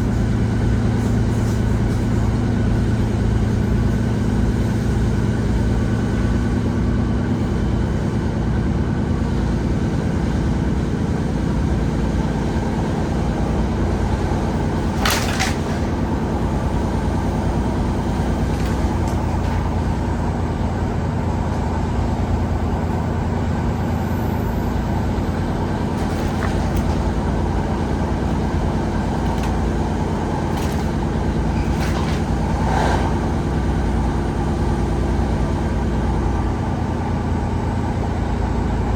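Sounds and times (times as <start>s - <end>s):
train diesel engine: 0.0s - 38.9s.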